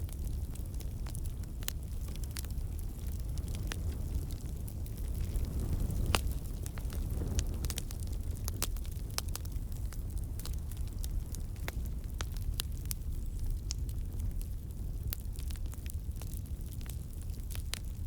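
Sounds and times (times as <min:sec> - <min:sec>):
burning wood crackling and popping: 0:00.0 - 0:18.0
low rumble of flames: 0:00.0 - 0:18.0.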